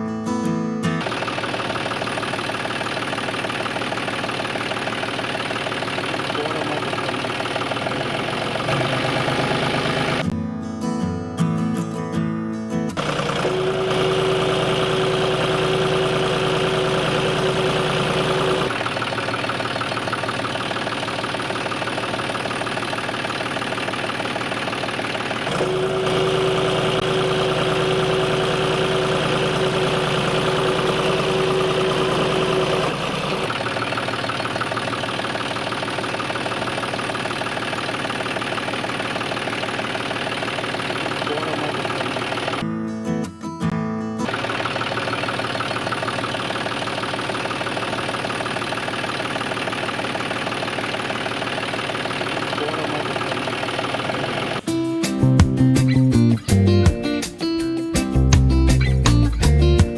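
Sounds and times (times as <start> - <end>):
motor running: 1.0 - 10.3, 13.0 - 42.6, 44.2 - 54.7
steady whine: 13.0 - 42.6, 44.3 - 54.7.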